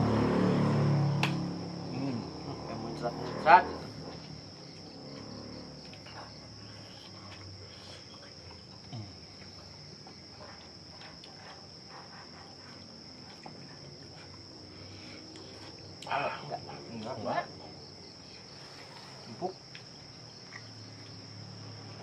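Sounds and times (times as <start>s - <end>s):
insects chirring: 0.0s - 22.0s
people chewing: 5.8s - 17.2s, 18.2s - 21.2s.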